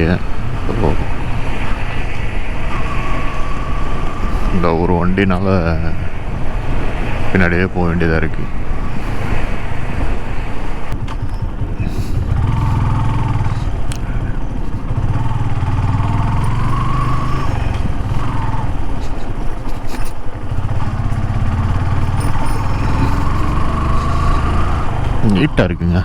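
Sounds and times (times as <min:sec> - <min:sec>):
motorcycle engine running: 0:00.0 - 0:04.5, 0:10.2 - 0:26.0
road and wind noise: 0:00.0 - 0:26.0.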